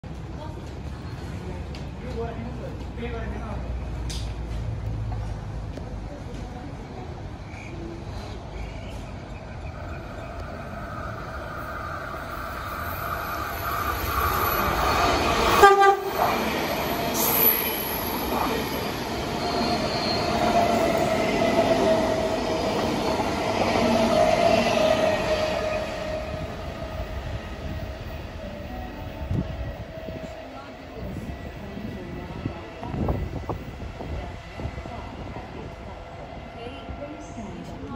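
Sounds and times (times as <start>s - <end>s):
train cars whining past: 6.6s - 37.9s
train horn blast: 15.5s - 16.2s.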